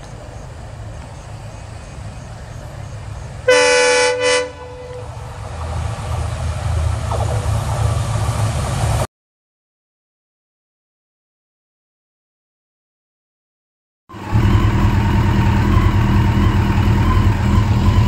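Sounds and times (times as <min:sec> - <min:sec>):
locomotive engine rumbling: 0:00.0 - 0:09.1, 0:14.1 - 0:18.0
locomotive horn blast: 0:03.4 - 0:05.6.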